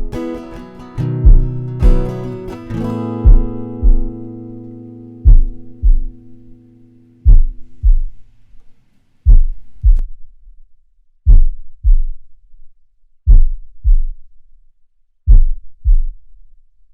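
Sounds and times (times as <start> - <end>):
acoustic accompaniment note: 0.0 - 7.8
heartbeat double thumps: 1.2 - 2.3, 3.2 - 4.2, 5.2 - 6.4, 7.2 - 8.2, 9.2 - 10.2, 11.2 - 12.2, 13.3 - 14.2, 15.3 - 16.2.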